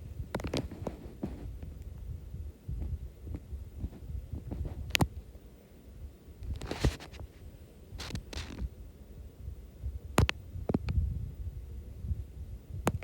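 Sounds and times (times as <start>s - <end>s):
soft rustles: 0.4s - 1.8s, 2.8s - 5.0s, 6.4s - 8.7s.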